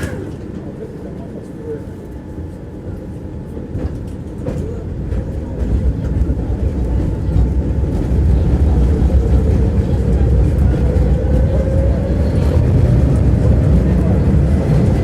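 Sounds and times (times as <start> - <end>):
tram wheels rumbling on track: 0.0 - 15.0.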